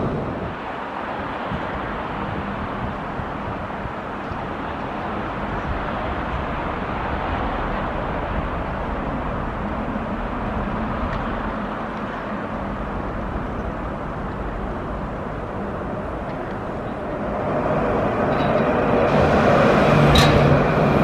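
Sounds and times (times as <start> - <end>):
street traffic rumble: 0.0 - 21.0
tram approaching: 0.0 - 21.0.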